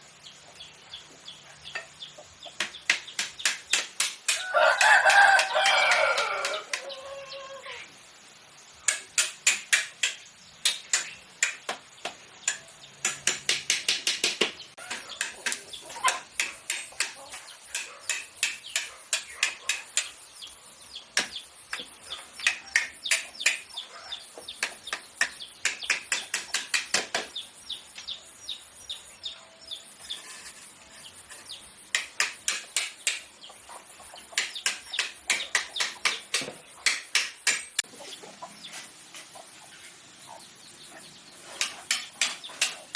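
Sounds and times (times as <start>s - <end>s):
rapid sharp knocks: 2.6s - 6.8s, 8.9s - 17.2s, 34.4s - 37.8s
chickens clucking: 4.4s - 7.5s, 14.8s - 20.5s, 33.0s - 37.0s, 37.8s - 42.9s.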